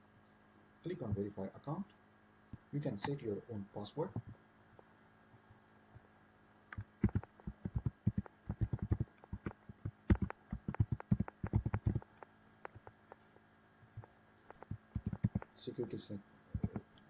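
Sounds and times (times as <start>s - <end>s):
typing on computer keyboard: 6.8s - 12.9s, 14.5s - 15.5s, 16.6s - 16.8s.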